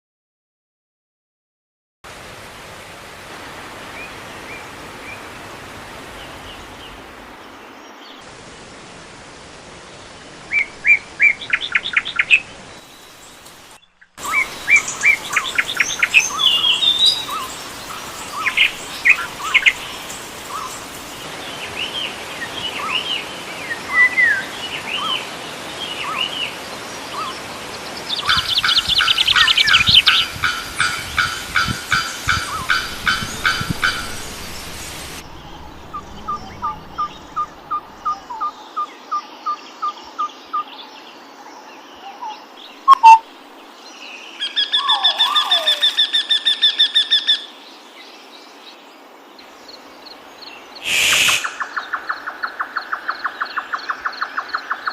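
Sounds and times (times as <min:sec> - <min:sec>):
background hiss: 0:02.1 - 0:54.9
birds calling and singing: 0:10.5 - 0:47.5, 0:49.4 - 0:54.9
bird chorus of repeated notes: 0:42.9 - 0:43.2.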